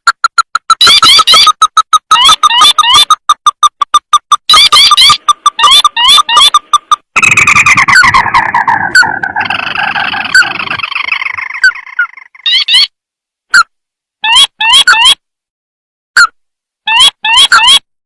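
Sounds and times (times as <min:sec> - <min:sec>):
crake calls: 0:03.8 - 0:12.9.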